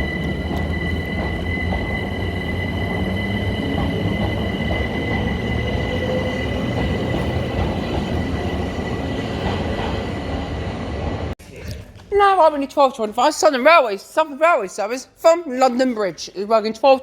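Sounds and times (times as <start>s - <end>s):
electric train rumbling: 0.0s - 11.4s
high train whine: 0.0s - 11.4s.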